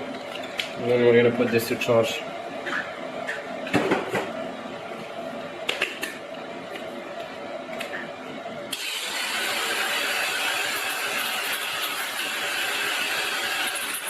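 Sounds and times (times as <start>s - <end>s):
angle grinder grinding: 8.7s - 14.0s.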